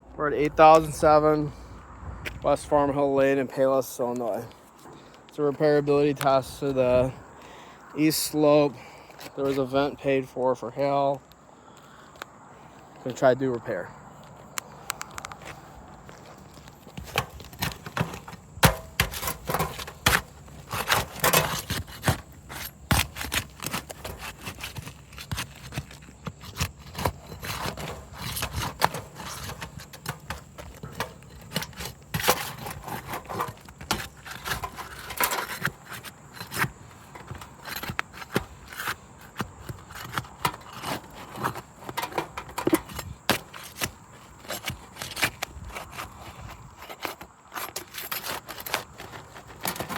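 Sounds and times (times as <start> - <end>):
roof shingles scraping and crackling: 2.4 - 49.9
shingle cracking: 16.1 - 49.9.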